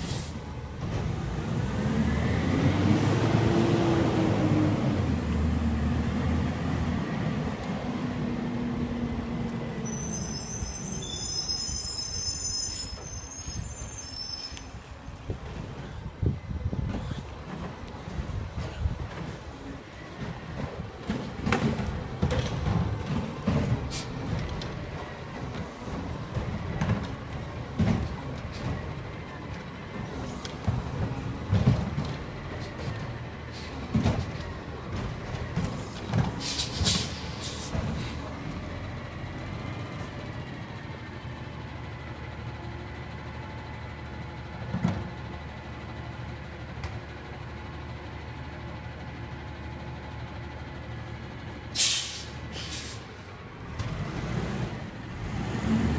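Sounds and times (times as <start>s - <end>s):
garbage truck engine rumble: 0.0s - 55.9s
thumps and clanks: 20.2s - 24.8s, 25.4s - 28.9s, 33.9s - 37.0s
air hisses: 51.8s - 53.1s.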